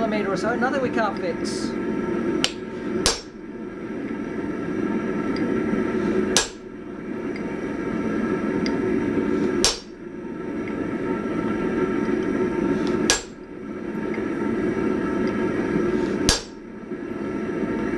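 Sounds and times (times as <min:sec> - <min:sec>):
heavy hammer blows on metal: 0:02.4 - 0:03.4, 0:06.4 - 0:06.7, 0:09.6 - 0:10.0, 0:12.9 - 0:13.5, 0:16.2 - 0:16.6.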